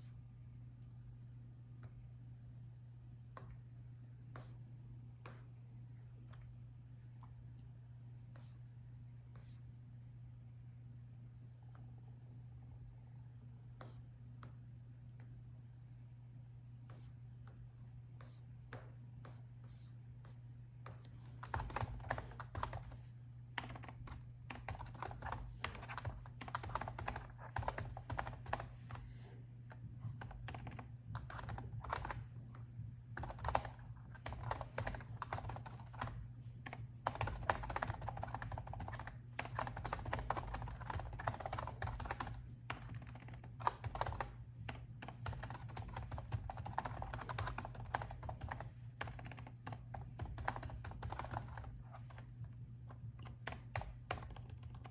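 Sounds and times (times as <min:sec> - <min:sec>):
typing on laptop keyboard: 0:21.4 - 0:29.1, 0:29.7 - 0:32.4, 0:33.2 - 0:54.9.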